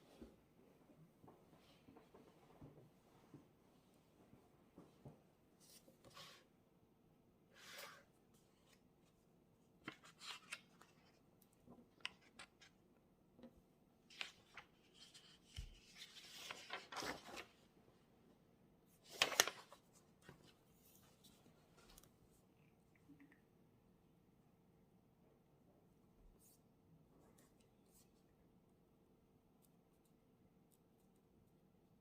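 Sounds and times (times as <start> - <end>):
paper rustling: 9.8 - 11.2, 11.8 - 12.8, 14.1 - 17.7, 18.9 - 22.1.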